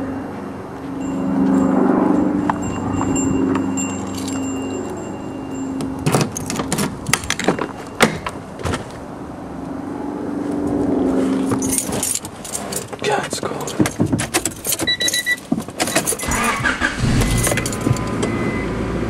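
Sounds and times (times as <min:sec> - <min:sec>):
metallic clicks and jingles: 0:01.5 - 0:08.4, 0:11.5 - 0:18.3.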